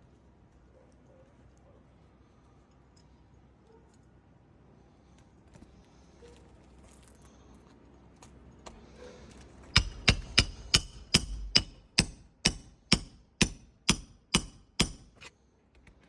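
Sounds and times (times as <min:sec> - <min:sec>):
hammer striking shingle roof: 0:09.7 - 0:15.2.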